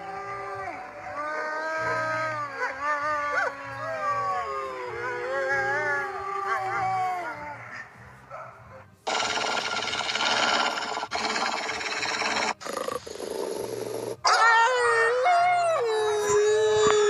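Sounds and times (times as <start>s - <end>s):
wolves howling: 0.0s - 12.6s, 14.2s - 17.0s
harsh rough noise: 9.1s - 13.2s.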